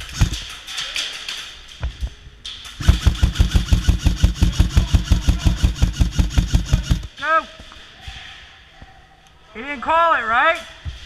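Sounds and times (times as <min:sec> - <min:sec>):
airsoft rifle firing: 0:00.0 - 0:00.6, 0:02.8 - 0:07.1.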